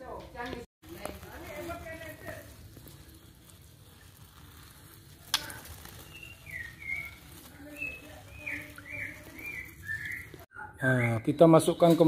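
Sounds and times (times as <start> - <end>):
whistled bird chirps: 6.0 - 11.5.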